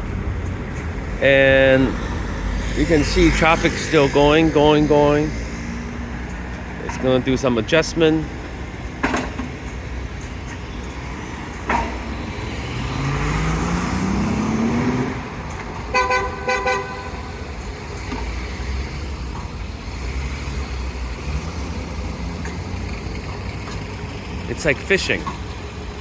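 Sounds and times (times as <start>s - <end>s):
engine revving: 0.0s - 8.0s, 12.0s - 26.0s
street traffic rumbling: 0.0s - 26.0s
car horn short toots: 15.9s - 17.3s.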